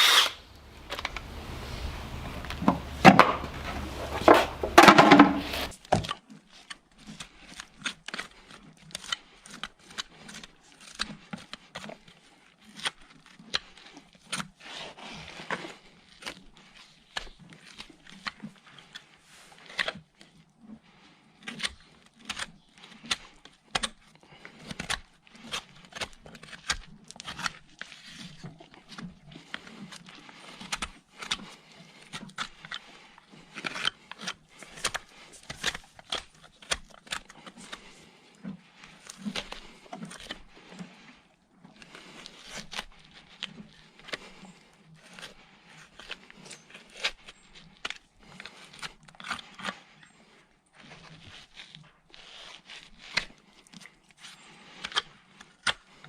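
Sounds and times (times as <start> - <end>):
hand tools scraping hoof: 0.0 - 5.8, 24.3 - 56.0.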